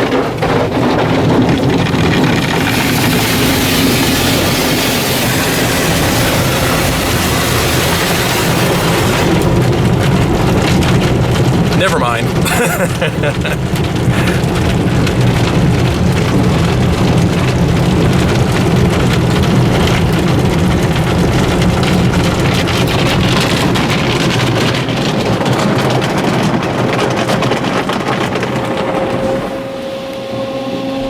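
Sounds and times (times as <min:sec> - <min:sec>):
car wash spray and brushes: 0:00.0 - 0:31.0.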